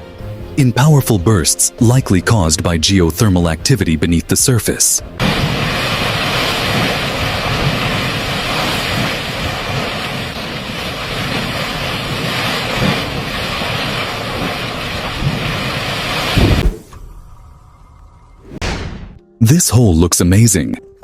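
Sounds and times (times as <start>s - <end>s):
rush of steam and water: 5.2s - 16.8s
low rumble: 16.3s - 18.7s.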